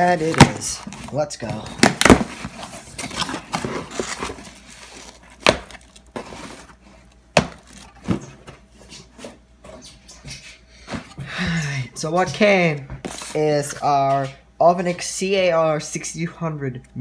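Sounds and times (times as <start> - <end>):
cardboard rustling and tearing: 0.0 - 9.4.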